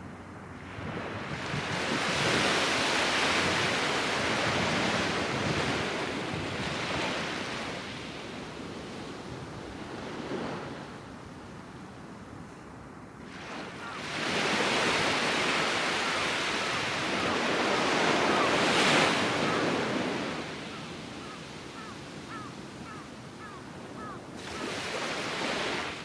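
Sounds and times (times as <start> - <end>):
waves breaking on sandy beach: 0.0 - 26.0
faint bird chirps: 20.7 - 24.2.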